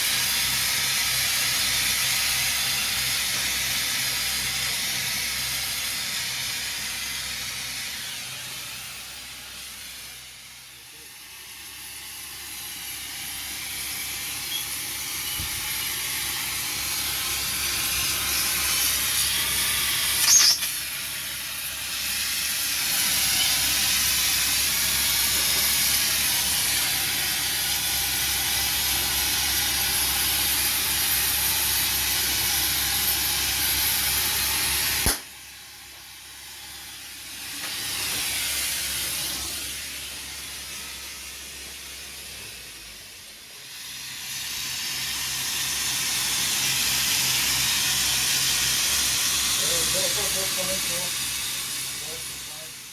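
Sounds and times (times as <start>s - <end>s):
gas torch flame hissing: 0.0s - 52.9s.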